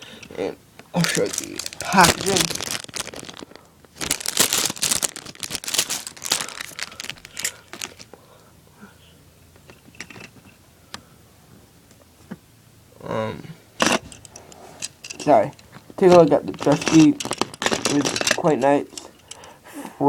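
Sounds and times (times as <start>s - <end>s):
packaging crinkling and rustling: 1.0s - 8.2s, 15.8s - 18.7s.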